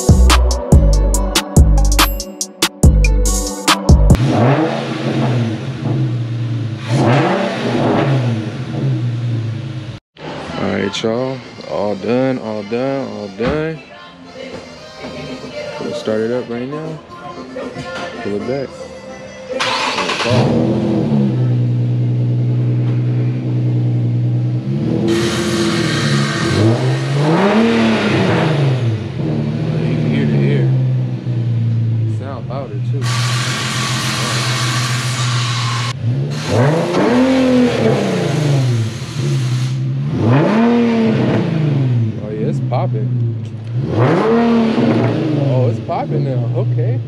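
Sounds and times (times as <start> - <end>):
car engine revving: 4.0 - 13.4, 19.6 - 47.0.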